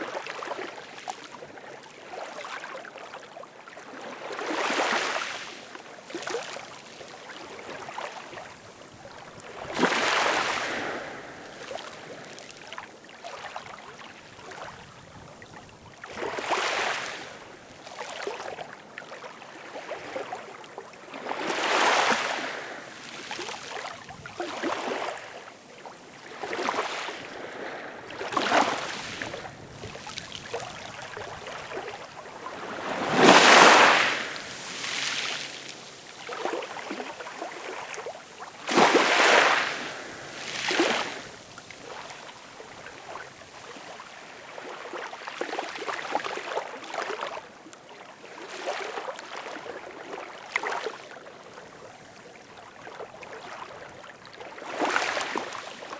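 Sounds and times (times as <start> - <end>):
ocean waves breaking: 9.5 - 12.4, 21.2 - 23.9, 26.1 - 44.8.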